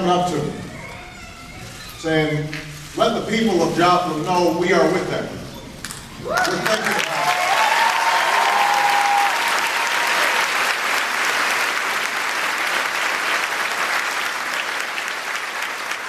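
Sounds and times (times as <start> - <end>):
voices cheering: 6.2 - 10.9
audience applauding: 6.2 - 16.0.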